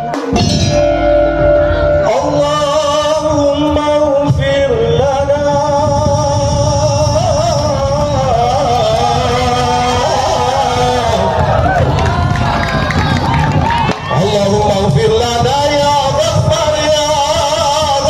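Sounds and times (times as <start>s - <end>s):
wavering melody line: 0.0s - 11.0s
drums and percussion: 0.0s - 18.0s.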